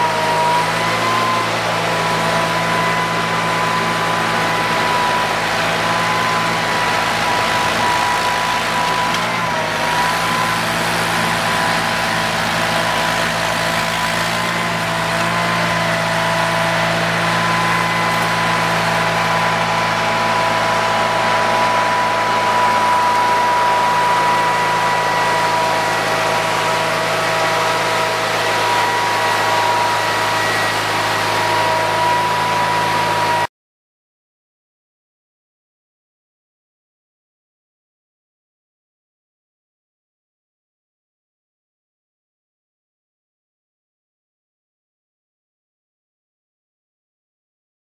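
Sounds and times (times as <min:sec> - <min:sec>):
tractor engine running: 0:00.0 - 0:33.5
high whine: 0:14.6 - 0:33.5.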